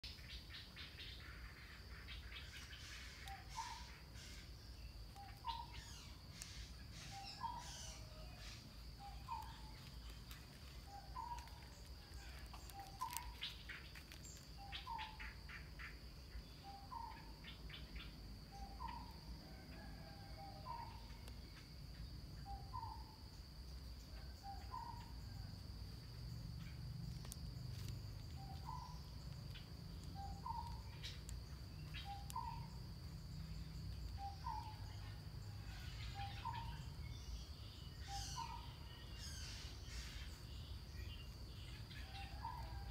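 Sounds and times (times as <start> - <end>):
high insect drone: 0.0 - 42.9
quick scattered chirps: 5.2 - 15.4.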